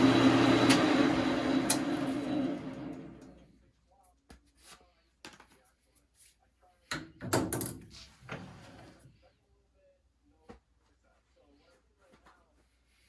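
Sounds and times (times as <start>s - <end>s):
metal lathe winding down: 0.0s - 3.4s
metal handling knocks and clicks: 6.9s - 7.9s.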